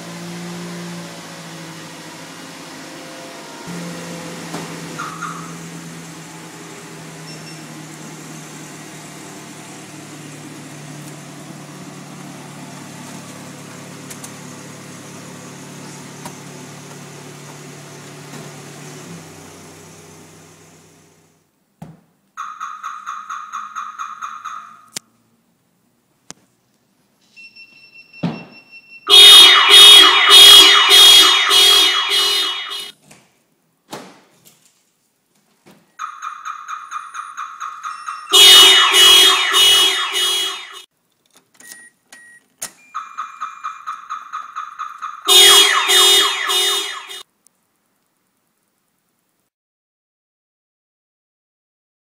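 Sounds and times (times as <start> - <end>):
car alarm pulsed siren: 4.8 - 5.8, 22.4 - 25.0, 28.1 - 32.9, 36.0 - 40.9, 42.9 - 47.2
car alarm quick beeps: 27.3 - 32.9, 36.0 - 40.8, 41.6 - 47.2.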